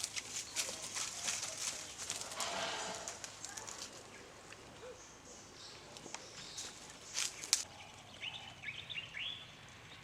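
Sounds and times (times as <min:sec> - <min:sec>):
crackling rustles: 0:00.0 - 0:04.6, 0:06.0 - 0:07.7.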